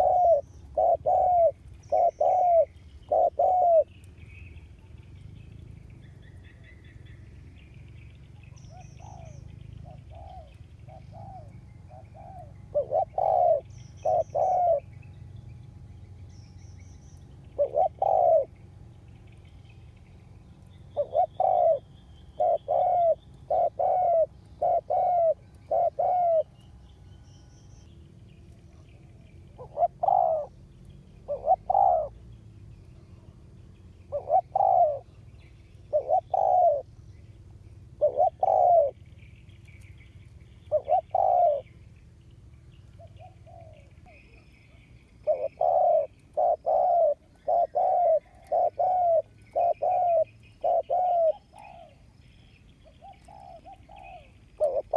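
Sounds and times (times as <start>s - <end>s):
dove cooing: 0.0s - 4.0s, 8.3s - 15.0s, 17.4s - 18.7s, 20.8s - 26.6s, 29.5s - 30.6s, 31.2s - 32.3s, 34.1s - 35.2s, 35.8s - 37.0s, 38.0s - 39.0s, 40.6s - 41.8s, 43.0s - 54.9s.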